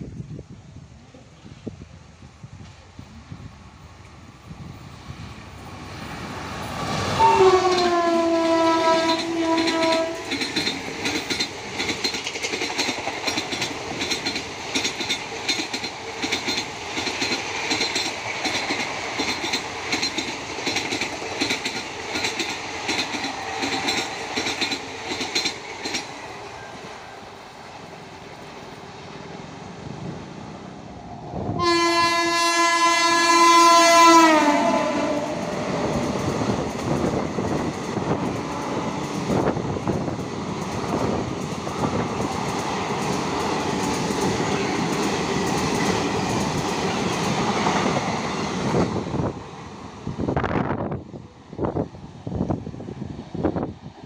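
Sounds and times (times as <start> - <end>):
train wheels clattering over rails: 6.2 - 26.6, 35.0 - 49.4
train horn: 7.1 - 10.5, 31.5 - 35.6.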